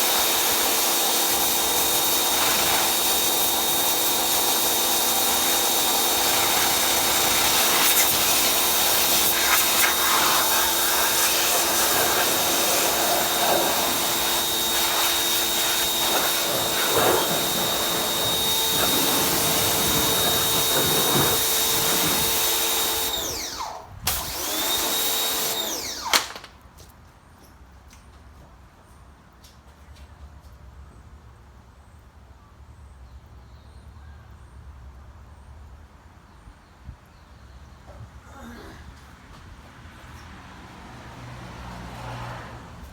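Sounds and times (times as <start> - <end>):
hiss: 0.0 - 23.3
electric motor whining: 0.0 - 26.3.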